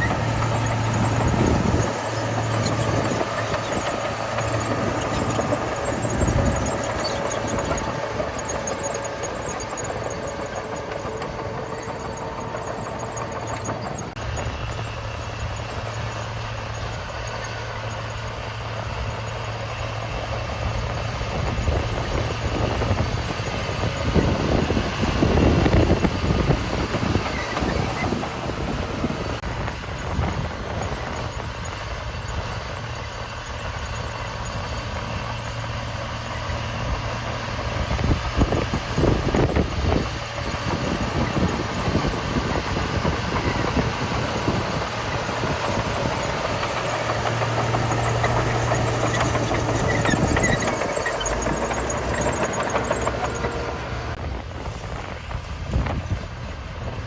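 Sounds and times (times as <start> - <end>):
high metallic squealing: 0.0 - 19.7, 40.4 - 54.2
diesel machinery engine hum: 0.0 - 57.0.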